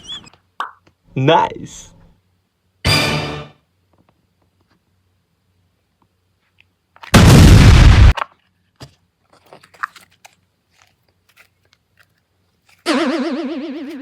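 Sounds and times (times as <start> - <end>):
distorted explosion blast: 7.2 - 8.1.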